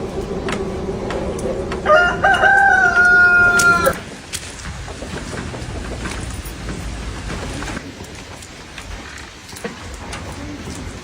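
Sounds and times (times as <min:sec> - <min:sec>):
rooster crowing: 0:00.5 - 0:04.0.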